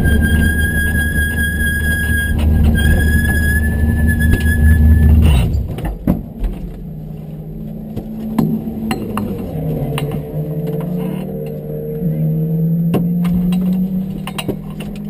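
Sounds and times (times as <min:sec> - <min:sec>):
high steady whine: 0:00.0 - 0:05.6.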